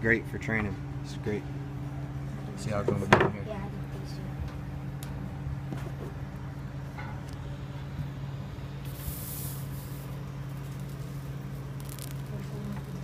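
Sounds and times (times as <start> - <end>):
steady low hum: 0.0 - 13.0
soldering iron sizzling: 8.5 - 13.0.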